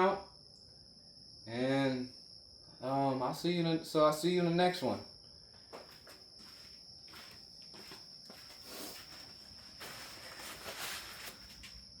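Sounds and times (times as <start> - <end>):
faint shuffling and rustling: 5.7 - 12.0.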